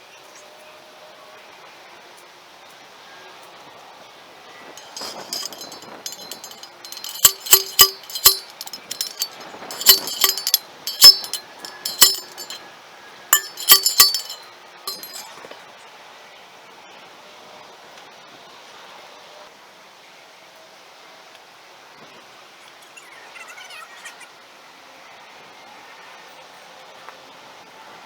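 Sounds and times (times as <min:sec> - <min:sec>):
hard objects clinking: 0:04.8 - 0:12.6, 0:13.4 - 0:15.3.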